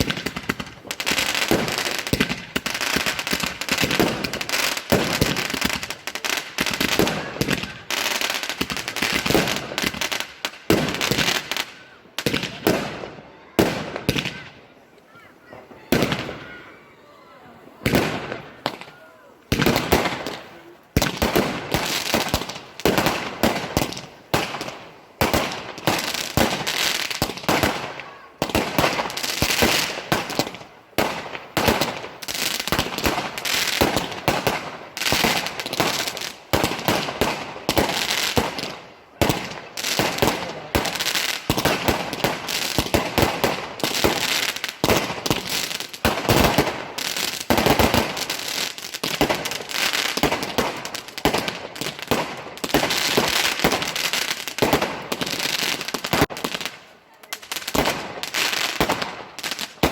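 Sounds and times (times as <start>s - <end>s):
fireworks bangs and crackles: 0.0s - 14.8s, 15.4s - 16.7s, 17.8s - 59.9s.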